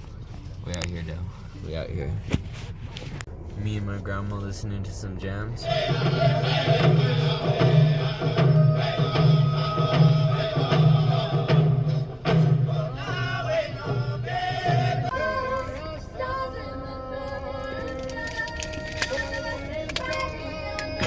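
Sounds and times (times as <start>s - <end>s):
music on car stereo: 5.6s - 21.0s.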